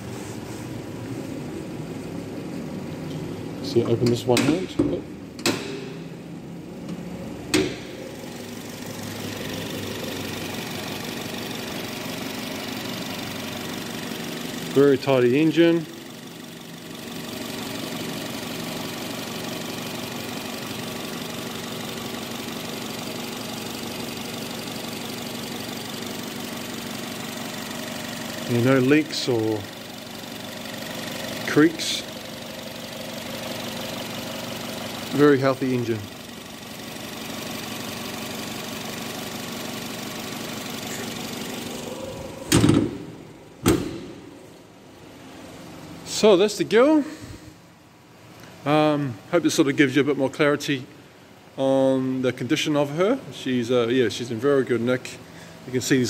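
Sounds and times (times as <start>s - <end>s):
car engine idling: 0.1s - 46.2s
car bonnet shutting with thumps: 42.4s - 44.3s.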